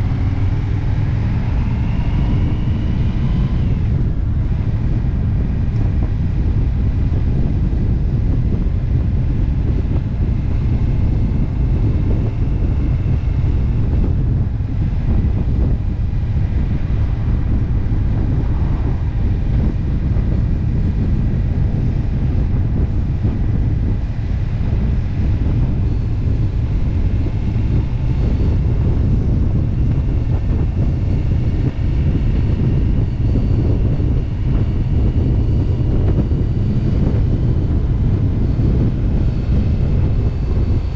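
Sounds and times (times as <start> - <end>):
motorcycle engine running: 0.0 - 40.9
wind buffeting microphone: 0.0 - 40.9.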